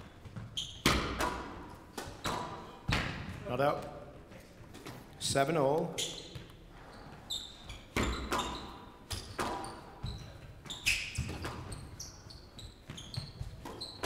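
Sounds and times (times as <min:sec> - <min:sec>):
shoes squeaking on court floor: 0:00.0 - 0:14.0
squash ball hits: 0:00.3 - 0:03.5, 0:08.0 - 0:10.1.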